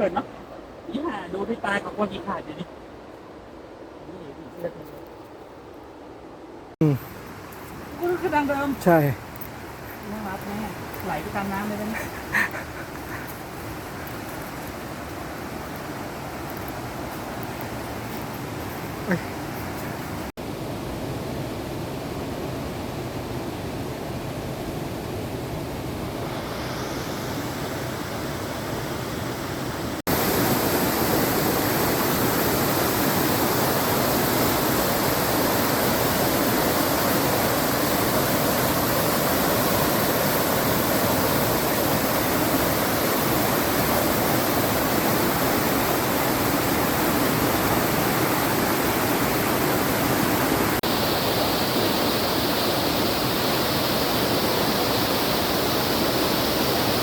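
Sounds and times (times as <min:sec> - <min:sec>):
waterfall rushing: 0:26.2 - 0:57.0.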